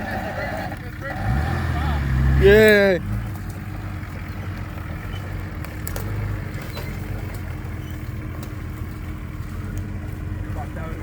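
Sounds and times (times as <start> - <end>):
engine idling at low revs: 0.0 - 11.0.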